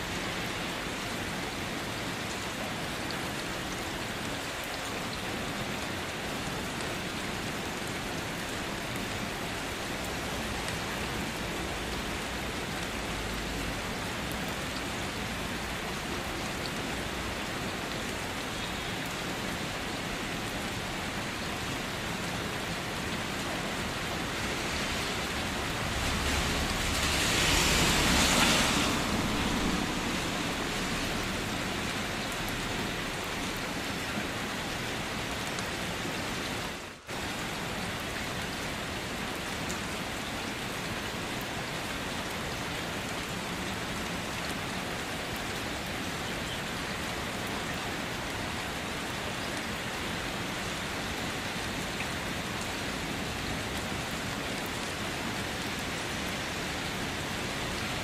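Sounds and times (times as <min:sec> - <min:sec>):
steady rain: 0:00.0 - 0:58.0
rush of noise: 0:23.9 - 0:33.3.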